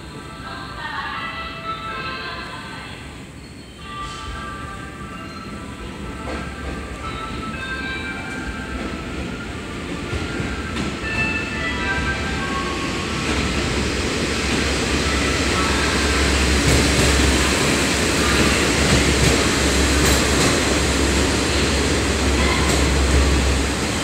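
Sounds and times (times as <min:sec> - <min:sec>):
train wheels rumbling on rail: 0:05.3 - 0:24.0.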